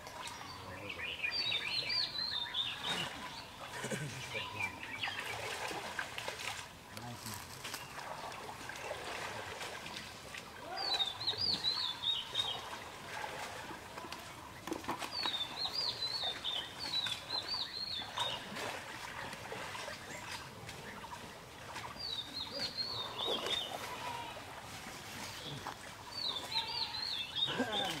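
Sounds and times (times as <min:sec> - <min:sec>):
small bird singing: 0:00.4 - 0:03.6, 0:25.4 - 0:28.0
water splashing and sloshing: 0:01.3 - 0:28.0.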